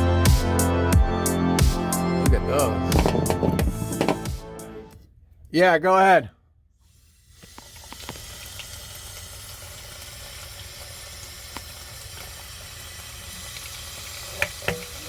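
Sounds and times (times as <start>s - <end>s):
sharp knocks: 2.8s - 4.4s
water running from a tap: 7.2s - 15.0s.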